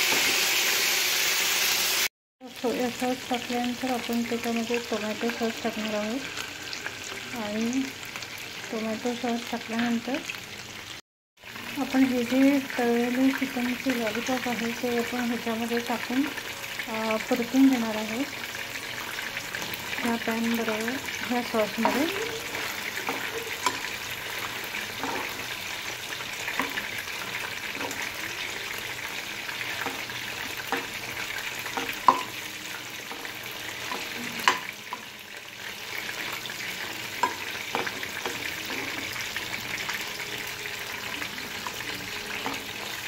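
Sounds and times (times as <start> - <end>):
chicken sizzling in oil: 0.0 - 43.0
spoon scraping pan: 19.1 - 28.8, 29.6 - 35.1, 36.1 - 40.0.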